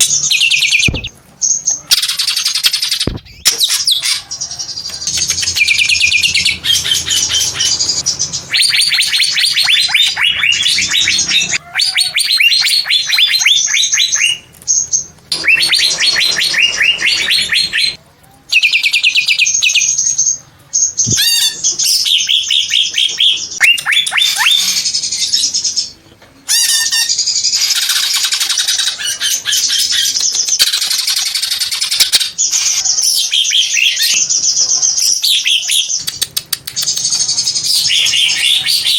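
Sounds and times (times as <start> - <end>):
bird singing rapid chirps: 0.0 - 4.2, 5.0 - 18.0.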